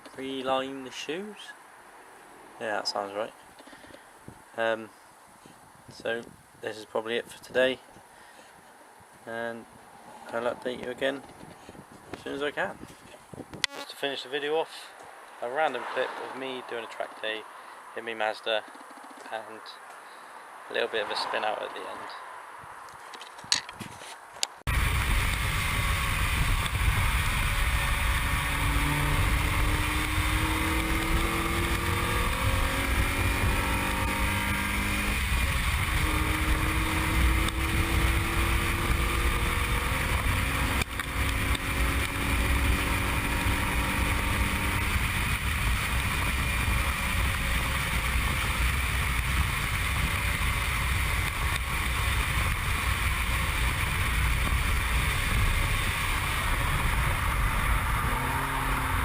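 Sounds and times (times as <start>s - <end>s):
wind noise on microphone: 5.4s - 6.7s, 7.4s - 13.8s, 23.4s - 59.0s
car engine accelerating hard: 24.7s - 59.0s.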